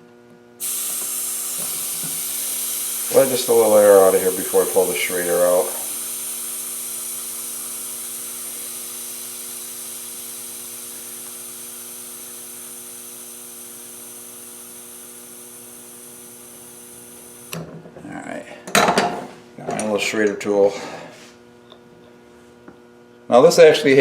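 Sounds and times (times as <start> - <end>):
air hissing from tire valve: 0.6 - 17.6.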